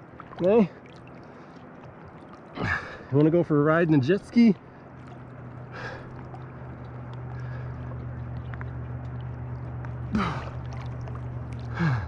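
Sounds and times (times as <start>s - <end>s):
jet ski engine idling: 0.0s - 12.0s
man sighing: 10.1s - 10.5s, 11.7s - 12.0s.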